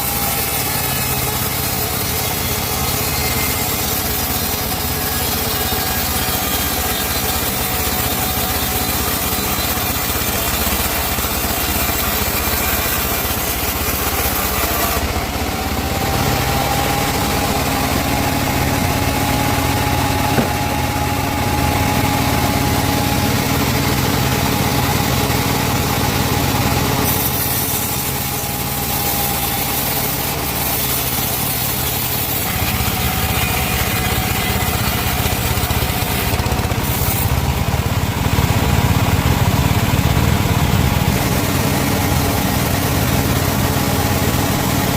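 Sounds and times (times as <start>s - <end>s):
chainsaw cutting wood: 0.0s - 40.3s.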